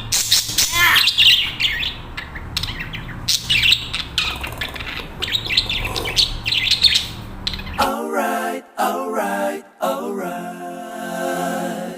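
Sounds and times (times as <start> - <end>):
budgerigars chattering: 0.1 - 7.8.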